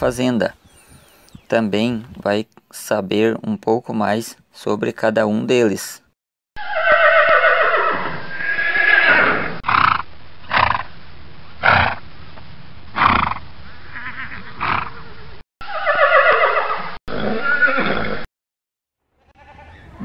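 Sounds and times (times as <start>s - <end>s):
horses neighing: 6.6s - 10.8s, 13.0s - 18.3s, 19.3s - 20.0s.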